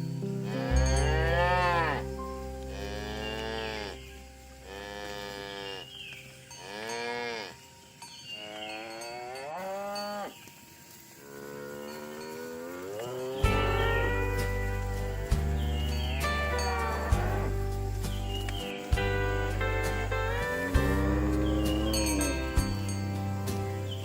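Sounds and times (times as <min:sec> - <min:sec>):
cattle mooing: 0:00.4 - 0:05.9, 0:11.3 - 0:17.7, 0:19.0 - 0:23.1.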